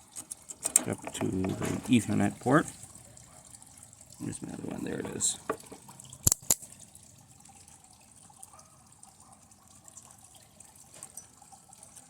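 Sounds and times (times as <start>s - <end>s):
faint crackling and fizzing: 0.0s - 12.0s.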